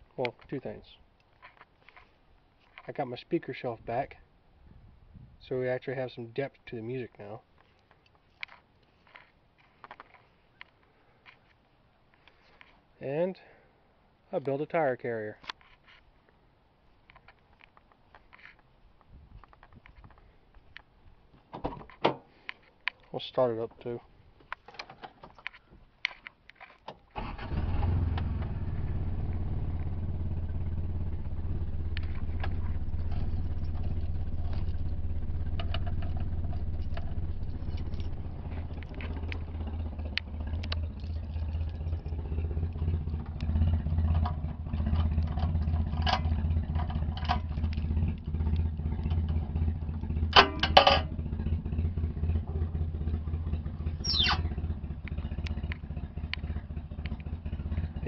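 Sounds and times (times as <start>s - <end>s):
car engine idling: 27.2s - 58.0s.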